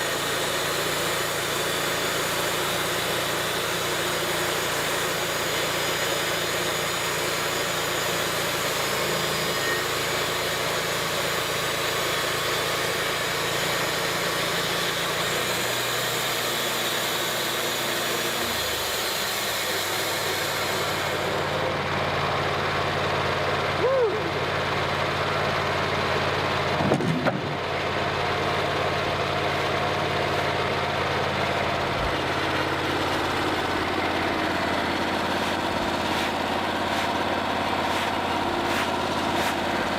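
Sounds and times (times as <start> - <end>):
engine running steadily: 0.0 - 39.9
short squeal: 8.9 - 10.3.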